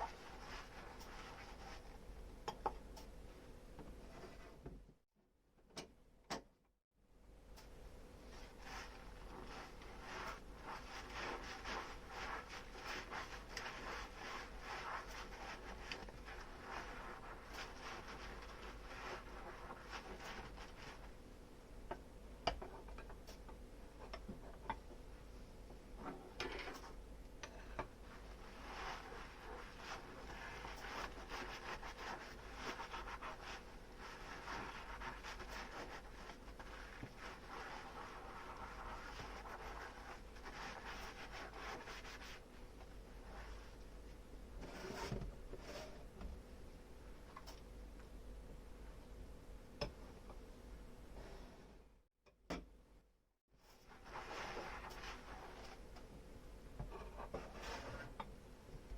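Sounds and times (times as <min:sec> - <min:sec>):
sponge scrubbing dishes: 0:08.3 - 0:21.1, 0:27.8 - 0:42.4.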